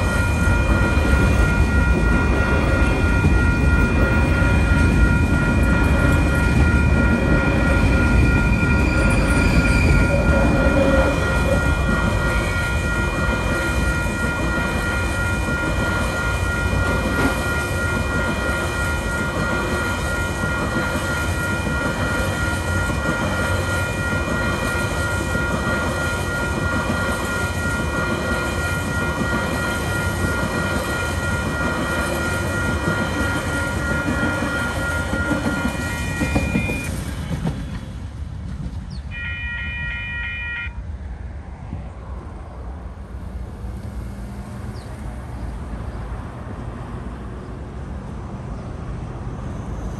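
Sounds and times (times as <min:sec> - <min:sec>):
crossing warning bell ringing: 0:00.0 - 0:37.6, 0:39.1 - 0:41.1
train wheels rumbling on rails: 0:00.0 - 0:39.2.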